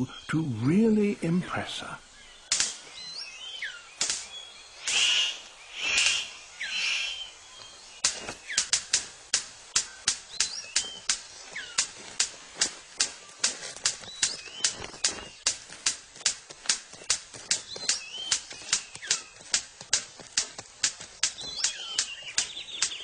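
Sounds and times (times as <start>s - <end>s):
bird harsh bursts: 1.8s - 15.5s, 16.9s - 20.6s, 21.2s - 23.0s
falling whistled bird chirps: 2.2s - 8.8s, 9.7s - 11.9s, 14.0s - 15.5s, 17.0s - 19.5s, 21.2s - 23.0s
sharp snapping clicks: 2.5s - 2.9s, 4.0s - 5.1s, 7.6s - 23.0s.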